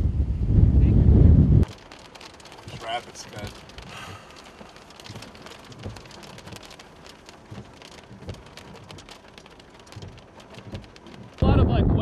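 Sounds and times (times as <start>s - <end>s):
rain on a car roof: 1.1s - 12.0s
low thumps: 7.4s - 12.0s.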